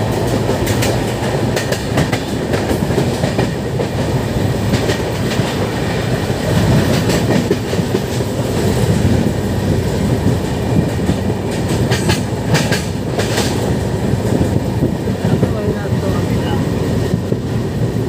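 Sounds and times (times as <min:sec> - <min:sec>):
rumble of train wheels on track: 0:00.0 - 0:18.0.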